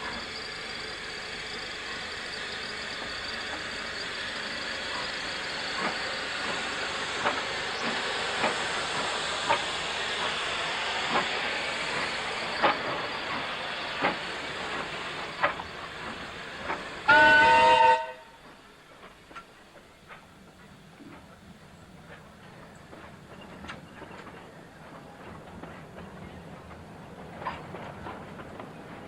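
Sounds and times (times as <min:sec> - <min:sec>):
steam locomotive hissing: 0:00.0 - 0:29.0
train whistle blast: 0:17.1 - 0:18.4.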